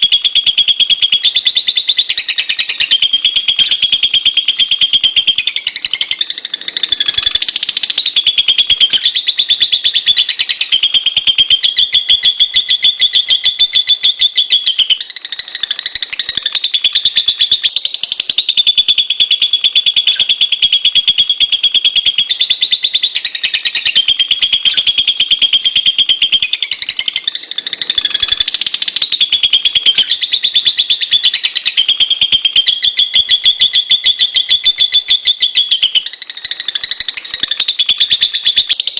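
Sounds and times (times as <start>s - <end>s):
lovebirds chattering: 1.2s - 4.2s, 4.9s - 10.8s, 20.0s - 20.4s, 22.6s - 31.9s.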